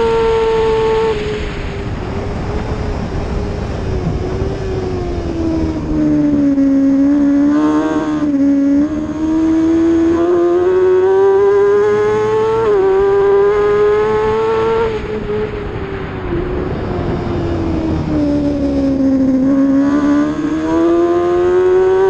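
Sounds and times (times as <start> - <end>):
wind noise: 0.0 - 22.0
race motorcycle engine revving: 3.6 - 15.5, 17.4 - 22.0.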